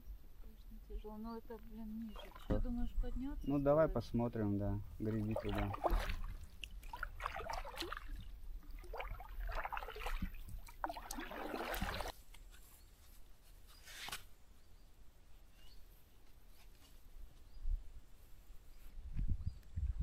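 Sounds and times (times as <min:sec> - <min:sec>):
paddle splashing in water: 0:01.9 - 0:02.9, 0:05.1 - 0:12.2.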